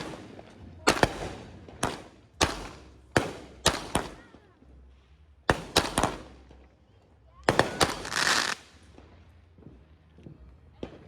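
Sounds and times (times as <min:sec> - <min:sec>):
firework bangs with echo: 0:00.0 - 0:04.4, 0:05.5 - 0:06.6, 0:07.5 - 0:09.8.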